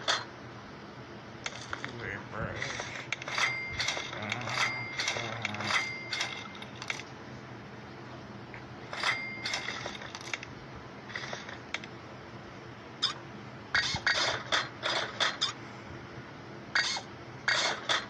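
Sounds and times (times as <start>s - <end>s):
metal tools clinking: 3.2s - 7.0s.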